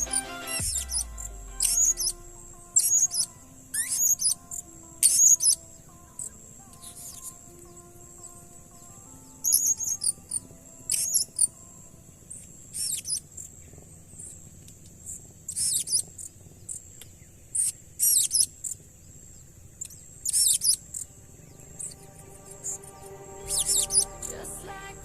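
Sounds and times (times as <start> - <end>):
faint high-pitched drone: 0.0 - 14.5, 20.3 - 25.0.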